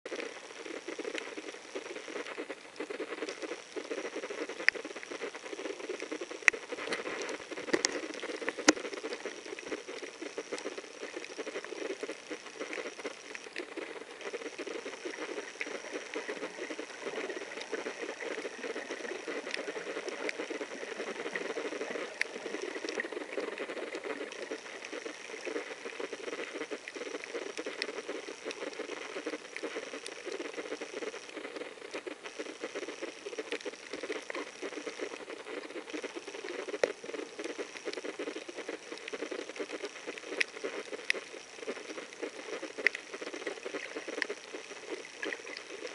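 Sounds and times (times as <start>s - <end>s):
crackle of fine clicks underwater: 0.1s - 45.9s
faint high whine: 0.1s - 45.9s.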